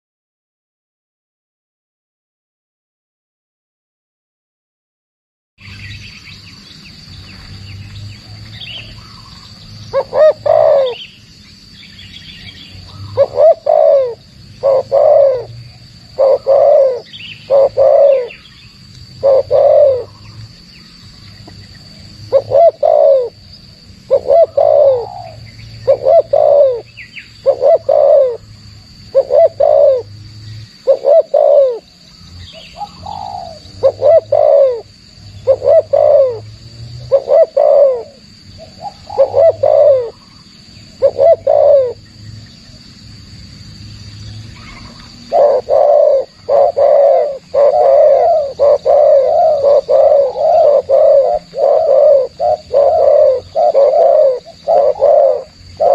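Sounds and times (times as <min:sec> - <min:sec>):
high insect drone: 0:05.6 - 0:55.9
dove cooing: 0:08.2 - 0:11.2, 0:12.4 - 0:18.6, 0:19.2 - 0:20.4, 0:21.4 - 0:28.4, 0:29.1 - 0:30.2, 0:30.8 - 0:42.2, 0:44.6 - 0:55.9.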